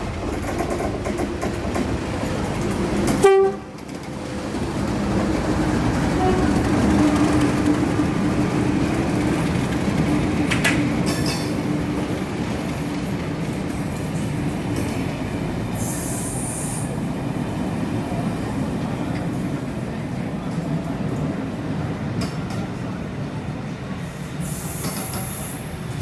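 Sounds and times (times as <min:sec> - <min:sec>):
train wheels rumbling on rail: 0:00.0 - 0:26.0
train squeal: 0:05.8 - 0:08.0, 0:08.9 - 0:14.3, 0:15.7 - 0:17.0, 0:24.0 - 0:26.0.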